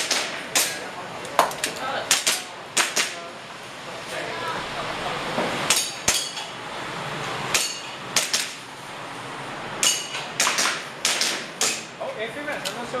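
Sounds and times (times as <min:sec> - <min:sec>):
airsoft pistol shots: 0:00.0 - 0:00.8, 0:07.5 - 0:08.6, 0:09.8 - 0:11.9.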